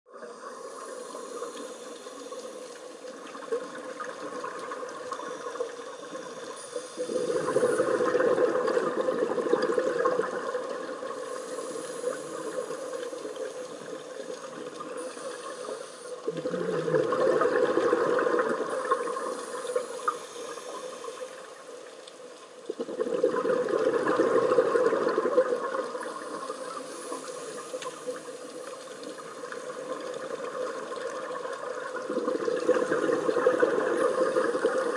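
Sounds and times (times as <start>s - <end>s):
regulator hiss: 0.2s - 3.5s, 5.2s - 8.2s, 11.1s - 16.6s, 18.6s - 21.9s, 26.0s - 30.0s
diver exhaling bubbles: 7.0s - 12.6s, 16.3s - 19.6s, 22.7s - 26.0s, 32.0s - 34.9s.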